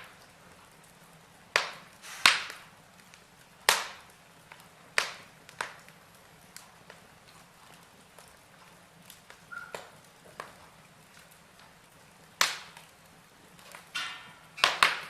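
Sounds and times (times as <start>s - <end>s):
wood fire crackling: 0.0s - 15.0s
loud sharp pop from fire: 1.5s - 2.8s, 3.6s - 4.1s, 4.9s - 5.9s, 12.4s - 12.9s, 13.7s - 15.0s.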